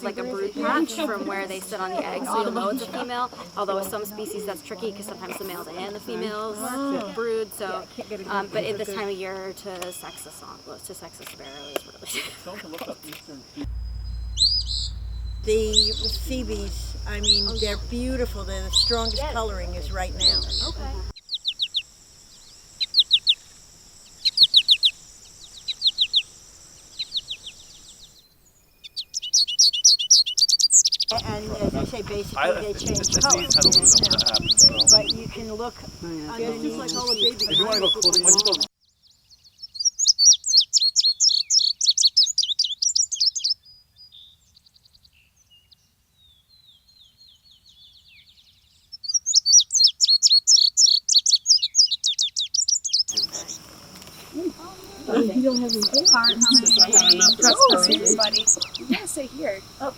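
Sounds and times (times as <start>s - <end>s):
steady high hiss: 13.6s - 21.1s, 53.1s - 59.9s
small songbird chirping: 13.6s - 59.9s.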